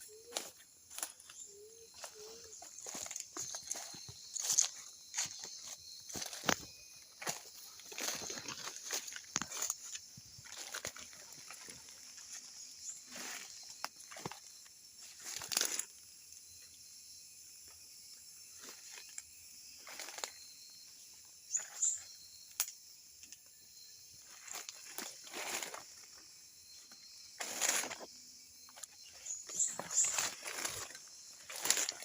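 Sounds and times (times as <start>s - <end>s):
footsteps through undergrowth: 0.2s - 15.9s, 24.3s - 26.3s, 27.3s - 28.1s, 28.7s - 32.0s.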